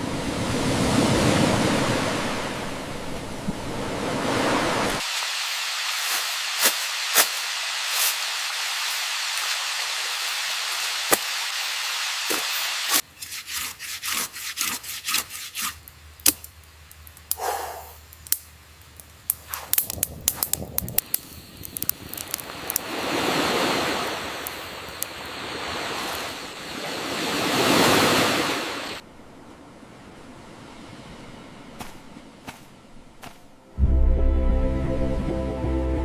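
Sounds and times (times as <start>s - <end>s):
steady hiss: 5.0s - 13.2s, 15.3s - 26.7s.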